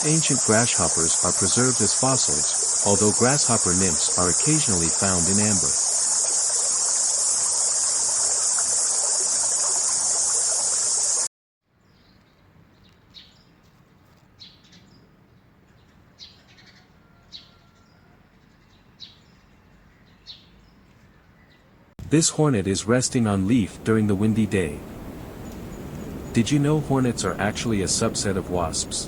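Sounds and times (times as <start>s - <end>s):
insect chorus shrilling: 0.0s - 11.3s.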